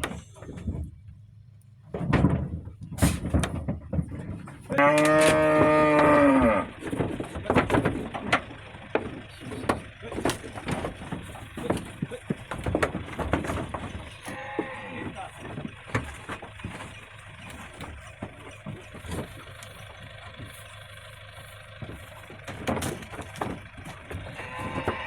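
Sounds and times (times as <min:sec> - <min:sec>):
knocks and rustles: 0:00.0 - 0:25.0
cow mooing: 0:04.7 - 0:06.8, 0:14.2 - 0:15.3, 0:24.3 - 0:25.0.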